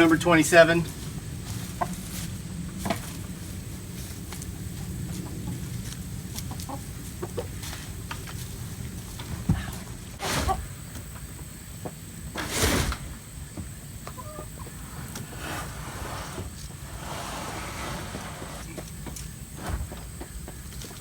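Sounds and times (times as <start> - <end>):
chickens clucking: 0.0 - 12.4, 13.0 - 15.8
hiss-like noise: 12.2 - 13.6.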